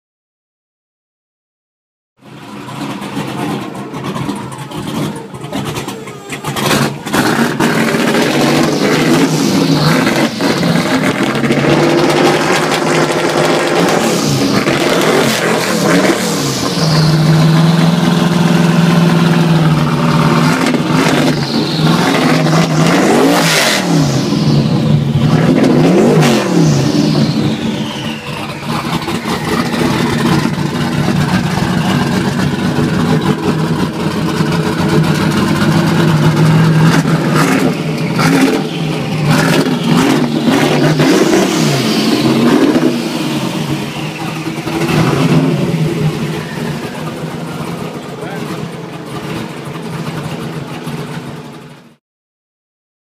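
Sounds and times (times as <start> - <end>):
high engine whine: 2.2 - 52.0
truck engine revving: 2.2 - 52.0.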